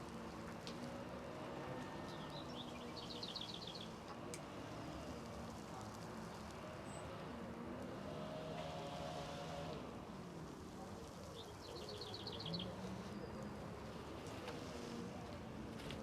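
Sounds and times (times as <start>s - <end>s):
small bird chirping: 11.3s - 13.5s.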